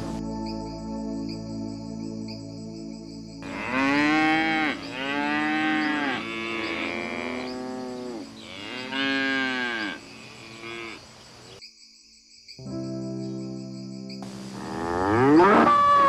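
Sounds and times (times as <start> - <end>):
cows mooing: 3.4 - 11.1, 14.6 - 16.0.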